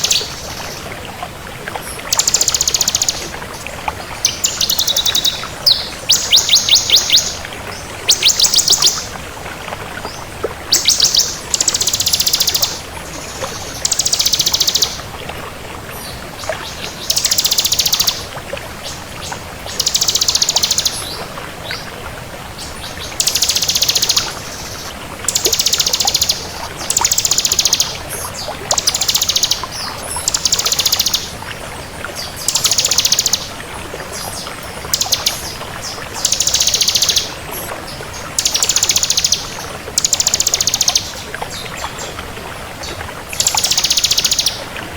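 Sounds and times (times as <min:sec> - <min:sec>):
bird singing rapid trills: 0:00.0 - 0:00.8, 0:02.1 - 0:03.3, 0:04.2 - 0:07.4, 0:08.1 - 0:09.1, 0:10.7 - 0:12.8, 0:13.8 - 0:15.0, 0:17.0 - 0:18.3, 0:19.8 - 0:21.1, 0:23.2 - 0:28.0, 0:28.7 - 0:31.4, 0:32.4 - 0:33.5, 0:34.9 - 0:37.4, 0:38.4 - 0:41.2, 0:43.4 - 0:44.6.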